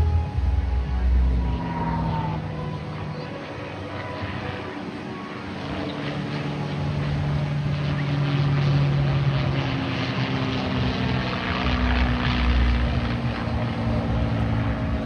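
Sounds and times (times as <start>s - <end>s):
deep rumble: 0.0s - 3.3s, 7.0s - 15.0s
propeller aircraft engine fly-by: 0.0s - 15.0s.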